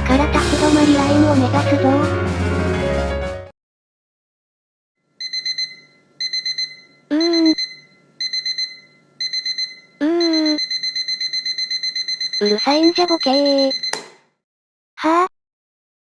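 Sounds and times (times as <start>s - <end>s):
alarm clock beeping: 5.2s - 14.0s.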